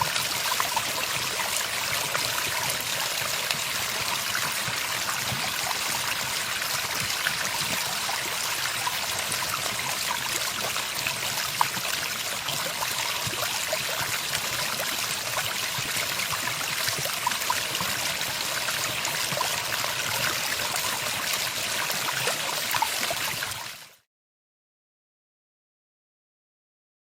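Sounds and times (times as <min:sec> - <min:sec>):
stream water rushing and trickling: 0:00.0 - 0:24.0.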